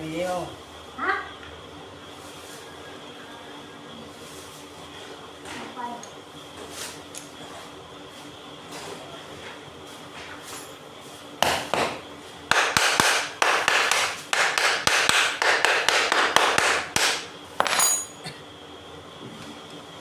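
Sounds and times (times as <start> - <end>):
hammer striking metal: 11.4 - 18.2.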